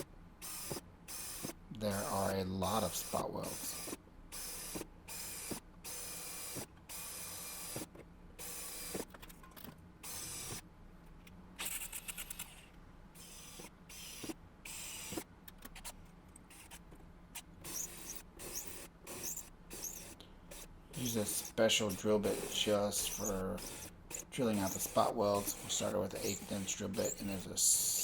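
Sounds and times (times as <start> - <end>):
electric drill cutting sheet metal: 2.9 - 7.8, 17.7 - 28.0.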